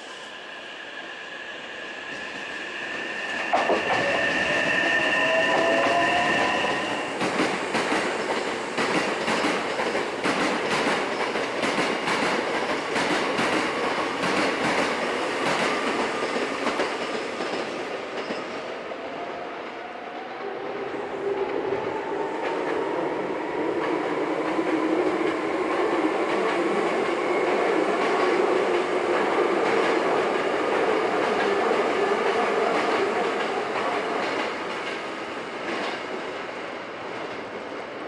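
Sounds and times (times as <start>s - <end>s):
train wheel squeal: 0.0s - 10.0s.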